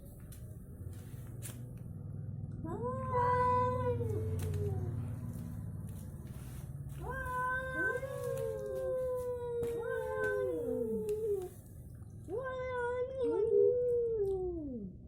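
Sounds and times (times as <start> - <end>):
cats yowling: 7.0 - 11.6.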